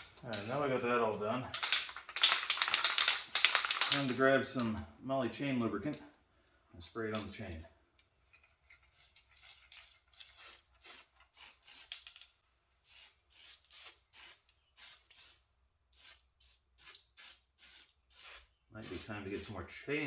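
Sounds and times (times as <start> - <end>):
aerosol spray hissing bursts: 9.0 - 11.9, 12.9 - 15.4, 16.0 - 19.6.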